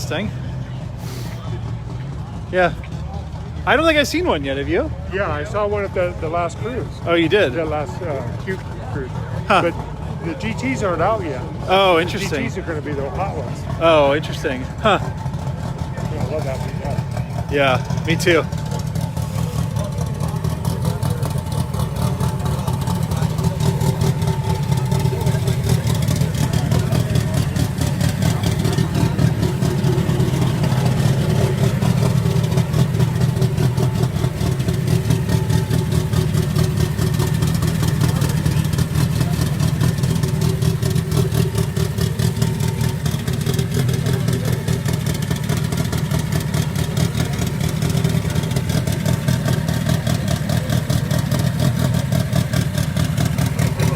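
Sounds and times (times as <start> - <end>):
car engine idling: 0.0 - 53.9.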